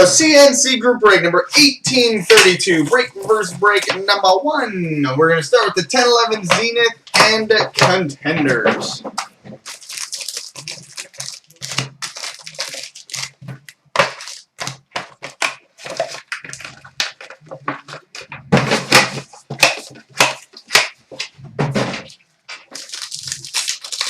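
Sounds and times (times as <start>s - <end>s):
packs and boxes being torn open: 8.5s - 18.3s, 22.0s - 24.0s.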